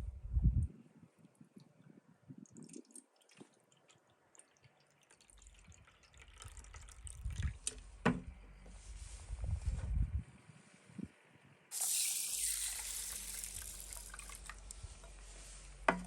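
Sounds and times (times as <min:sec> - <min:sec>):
water dripping: 0:02.3 - 0:07.8, 0:11.7 - 0:14.8
water being poured: 0:02.4 - 0:07.6, 0:11.7 - 0:15.2.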